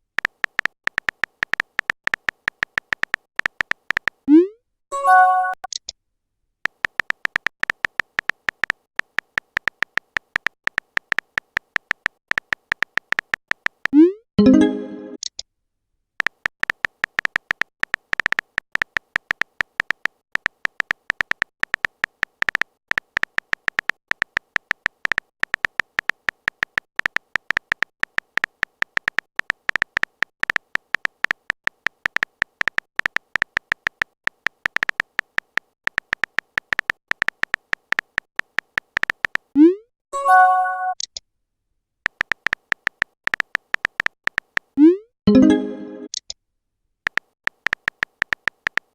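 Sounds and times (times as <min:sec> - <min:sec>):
rapid short typing beeps: 0:47.1 - 0:48.9.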